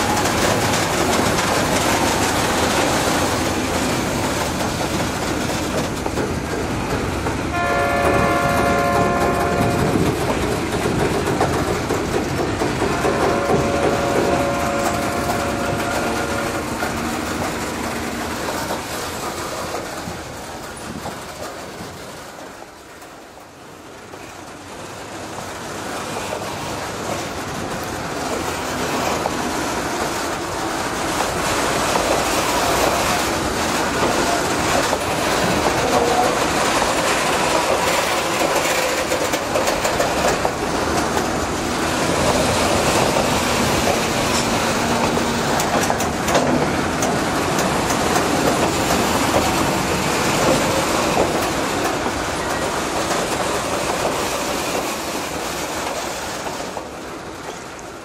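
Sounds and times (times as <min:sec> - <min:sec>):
diesel locomotive working: 0:00.0 - 0:58.0
wagons clattering on rails: 0:00.0 - 0:58.0.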